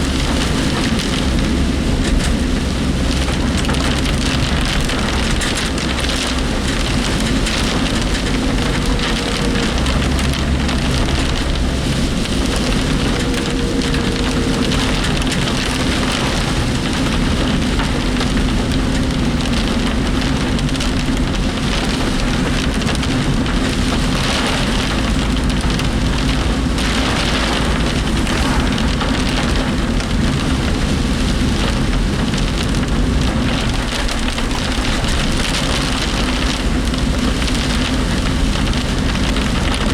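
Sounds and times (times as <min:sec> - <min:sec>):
engine and road drone: 0:00.0 - 0:39.9
heavy rain drumming on vehicle: 0:00.0 - 0:39.9
vehicle body rattling: 0:00.0 - 0:39.9.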